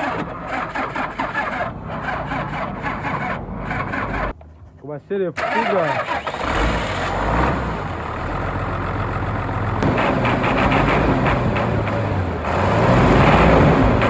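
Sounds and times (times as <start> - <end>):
diesel engine running: 5.4 - 14.0.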